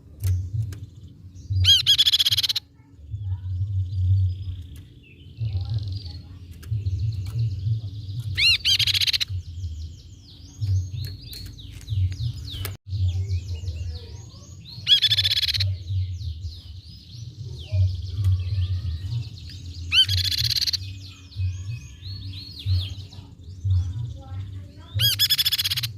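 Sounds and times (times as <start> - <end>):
bird chirps and trills: 0.0 - 25.9
low rumbling background noise: 0.0 - 25.9
bird rapid repeated notes: 0.2 - 2.7, 5.4 - 13.2, 14.8 - 16.7, 19.9 - 21.6, 25.0 - 25.9.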